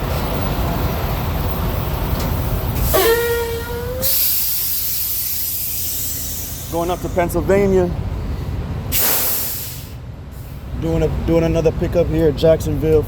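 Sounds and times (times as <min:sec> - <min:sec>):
diesel truck engine idling: 0:00.0 - 0:13.0
horn-like tone: 0:02.9 - 0:04.1
loud high air hiss: 0:04.0 - 0:07.2, 0:08.9 - 0:10.6.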